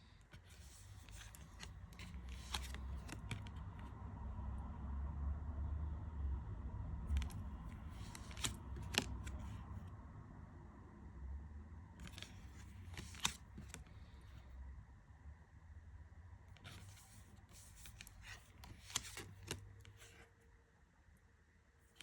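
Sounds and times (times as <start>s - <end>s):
cards being flipped: 0.3s - 3.9s, 7.1s - 9.6s, 12.0s - 14.2s, 16.6s - 20.2s.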